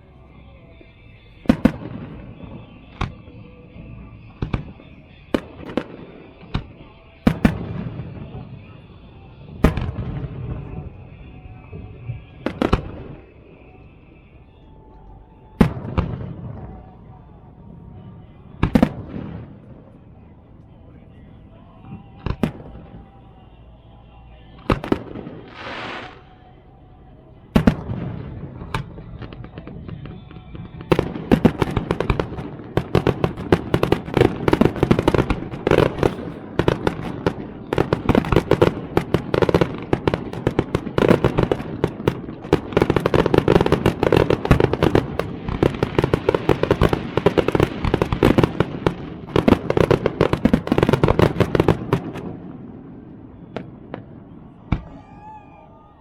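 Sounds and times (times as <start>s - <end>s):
firework bangs: 0.6s - 14.3s, 15.4s - 20.3s, 21.0s - 26.6s, 27.5s - 55.6s
firework hiss: 25.4s - 26.4s
barrage of bangs and crackles: 27.6s - 52.4s.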